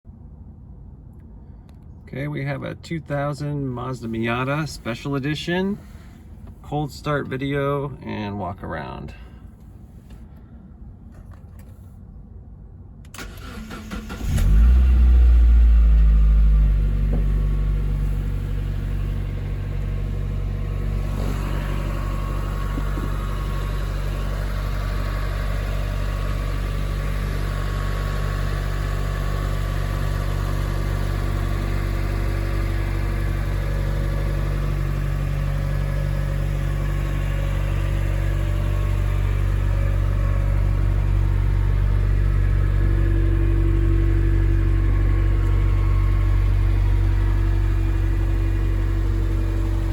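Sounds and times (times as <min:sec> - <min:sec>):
car engine cold start: 0:13.1 - 0:49.9.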